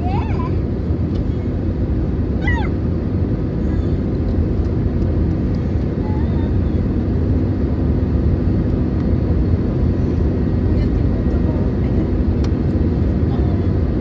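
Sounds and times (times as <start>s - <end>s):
aircraft cabin rumble: 0.0s - 14.0s.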